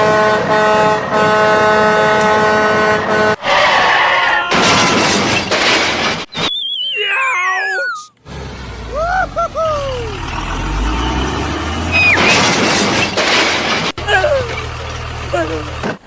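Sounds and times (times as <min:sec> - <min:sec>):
falling cartoon whistle: 0:06.3 - 0:08.1, 0:11.8 - 0:12.5
short swooping chirps: 0:06.3 - 0:08.1, 0:11.0 - 0:12.5.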